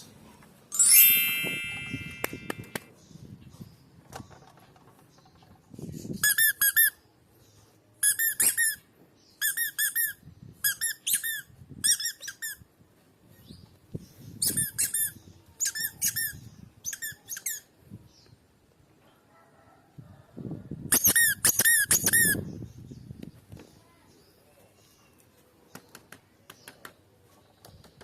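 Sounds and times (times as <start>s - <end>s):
toy squeaker squeaking: 0.7s - 2.8s, 6.2s - 7.0s, 8.0s - 8.8s, 9.4s - 12.6s, 14.4s - 17.7s, 20.9s - 22.4s.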